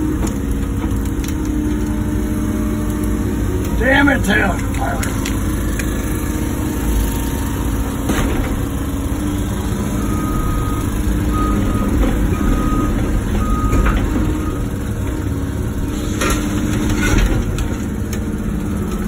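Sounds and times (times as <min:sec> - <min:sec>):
excavator diesel engine: 0:00.0 - 0:19.0
reversing alarm beeping: 0:09.7 - 0:14.9.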